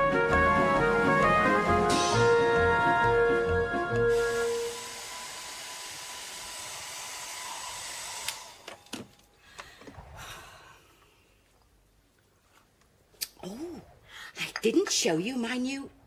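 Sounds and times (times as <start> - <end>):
hair dryer blowing: 4.0 - 8.6.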